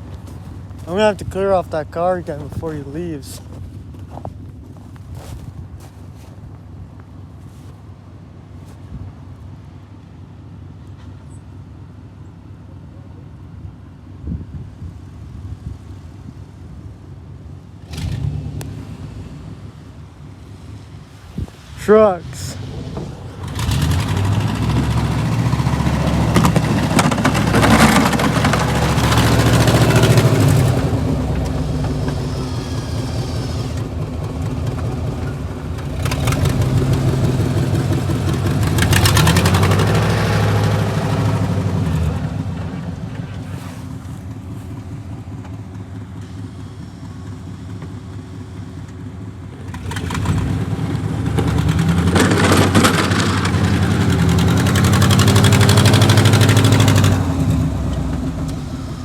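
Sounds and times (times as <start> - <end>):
vehicle engine accelerating: 17.8 - 59.0.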